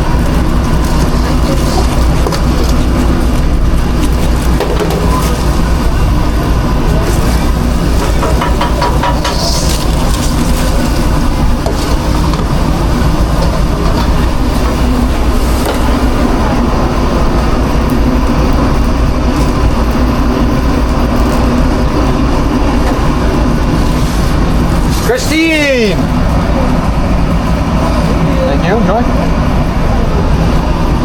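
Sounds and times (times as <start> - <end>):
kitchen machinery drone and hiss: 0.0 - 31.0.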